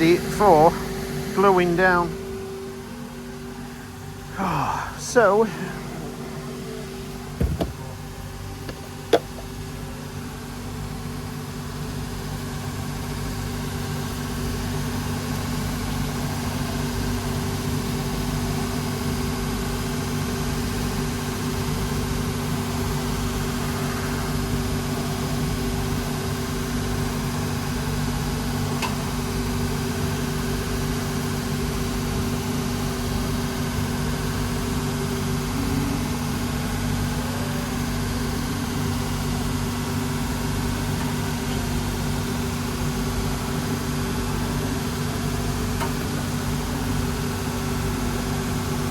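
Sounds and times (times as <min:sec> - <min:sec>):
workshop machine motor humming: 0:00.0 - 0:48.9
short knocks: 0:07.4 - 0:07.9.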